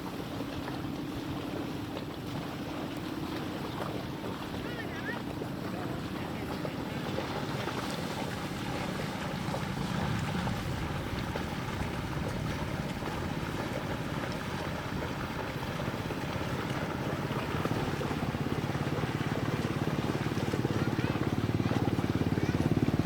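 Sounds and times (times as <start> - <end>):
small engine running: 2.4 - 23.0
wind on microphone: 5.4 - 23.0.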